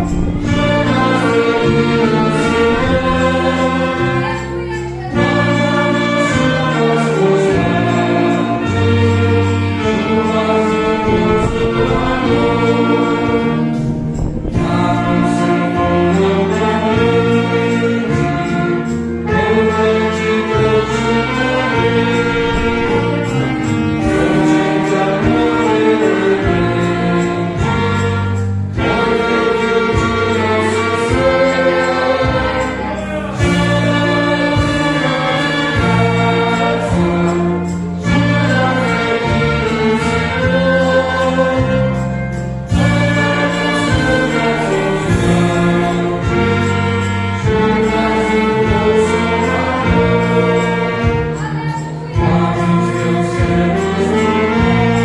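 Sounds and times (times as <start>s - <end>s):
choir singing a hymn: 0.0s - 55.0s
orchestral accompaniment: 0.0s - 55.0s.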